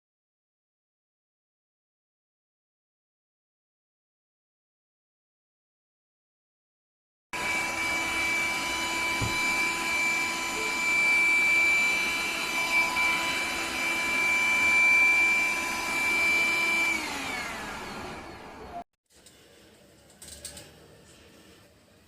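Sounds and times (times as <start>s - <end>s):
motor spinning down: 7.4s - 18.8s
vacuum cleaner motor whine: 7.4s - 18.8s.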